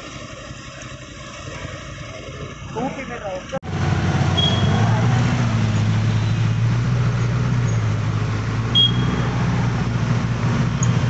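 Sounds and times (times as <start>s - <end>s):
road traffic noise: 0.0s - 11.0s
vehicle engine droning: 0.0s - 11.0s
short high beep: 4.4s - 4.8s, 8.8s - 9.2s.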